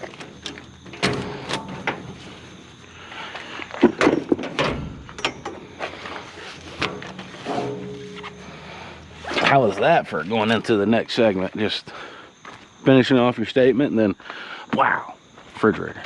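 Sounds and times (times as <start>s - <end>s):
sharp knocks and clunks: 6.8s - 8.6s.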